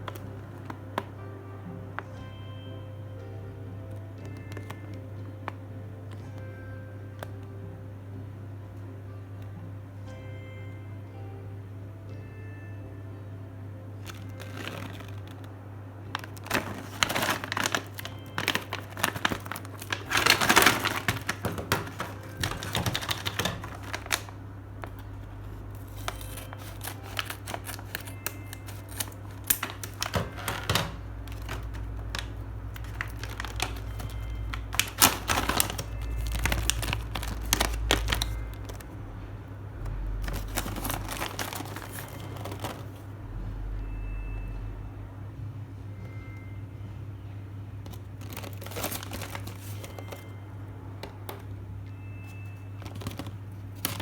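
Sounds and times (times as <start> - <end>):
packaging crinkling: 0.0 - 1.2, 14.0 - 39.0, 39.8 - 43.1, 47.9 - 50.4, 52.7 - 54.0.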